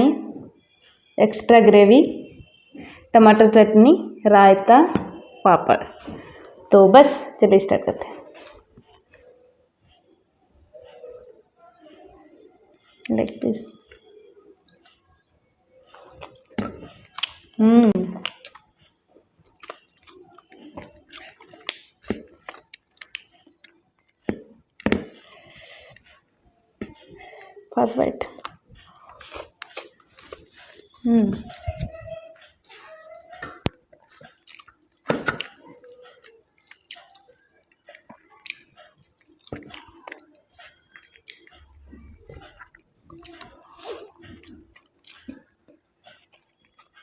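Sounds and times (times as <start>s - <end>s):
soft food squishes: 0.4s - 1.3s, 8.0s - 47.0s
wet chewing and lip smacks: 13.8s - 15.1s, 15.9s - 17.6s, 18.2s - 27.2s, 28.2s - 31.8s, 32.4s - 47.0s
food clicks and crackles: 18.2s - 27.2s, 28.2s - 31.0s, 33.4s - 47.0s.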